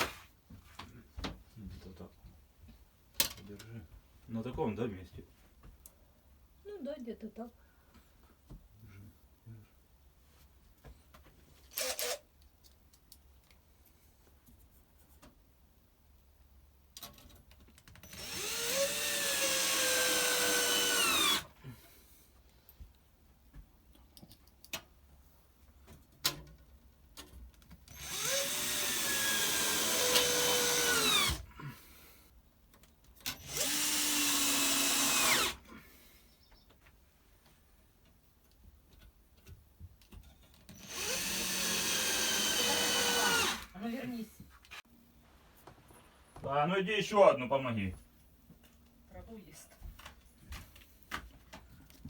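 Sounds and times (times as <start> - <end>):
cordless drill driving screws: 11.7 - 12.2, 18.0 - 21.5, 27.9 - 31.4, 33.2 - 35.7, 40.7 - 43.7.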